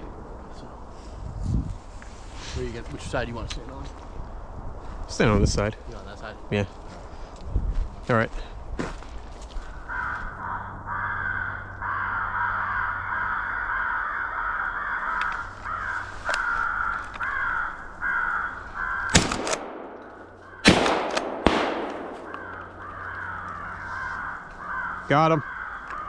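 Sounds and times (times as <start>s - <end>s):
crows cawing: 9.6s - 26.0s
shotgun shots: 19.1s - 23.0s.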